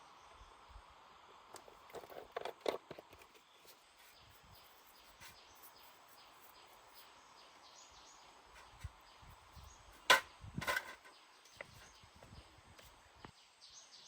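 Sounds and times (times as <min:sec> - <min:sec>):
faint outdoor background: 0:00.0 - 0:14.0
clatter of small knocks: 0:01.6 - 0:03.4, 0:10.1 - 0:11.7.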